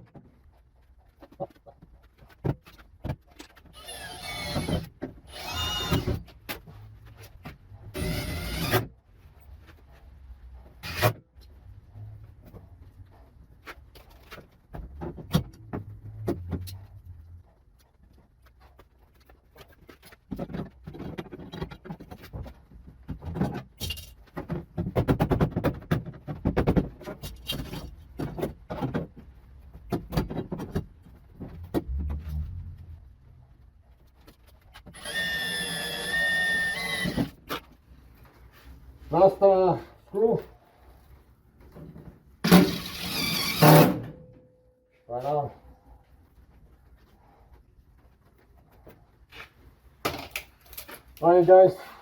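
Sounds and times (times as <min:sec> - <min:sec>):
power tool motor whirring: 0:03.8 - 0:06.2, 0:07.9 - 0:08.9, 0:34.9 - 0:37.3, 0:42.5 - 0:44.0.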